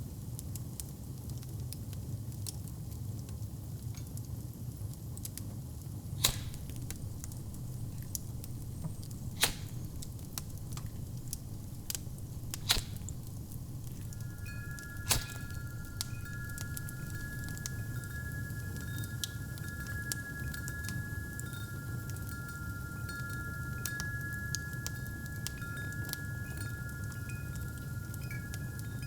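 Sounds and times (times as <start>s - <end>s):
wood fire crackling: 5.3s - 29.0s
fire pops: 6.1s - 29.0s
wind chime ringing: 6.2s - 29.0s.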